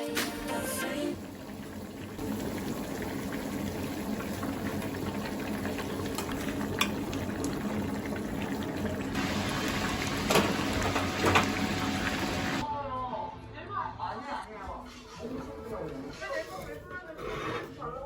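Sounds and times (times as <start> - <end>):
food bubbling and sizzling: 0.8 - 12.6.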